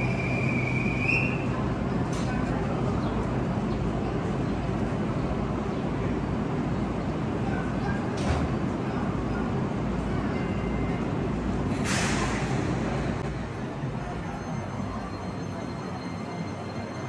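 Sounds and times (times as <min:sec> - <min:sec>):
train rumbling along track: 0:00.0 - 0:17.0
short burst of hiss: 0:11.7 - 0:12.9.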